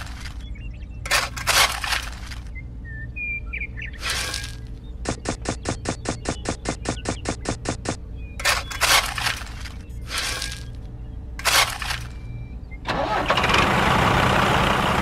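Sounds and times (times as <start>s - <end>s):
bird chirps: 0.0s - 12.9s
toy shovel scooping grit: 4.0s - 4.6s, 8.4s - 10.8s
fast even clicks: 5.0s - 8.0s.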